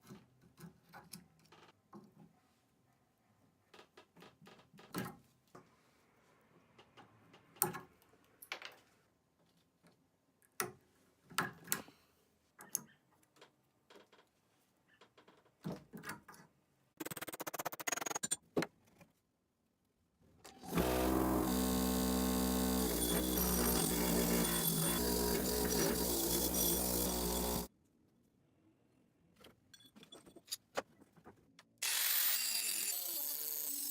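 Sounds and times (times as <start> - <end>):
electric power tool running: 20.7 - 27.7.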